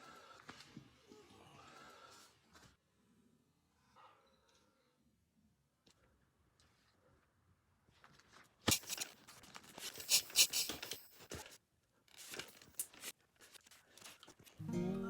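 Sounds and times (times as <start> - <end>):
tearing and crinkling rustles: 8.7 - 14.6
acoustic guitar music: 14.6 - 15.0.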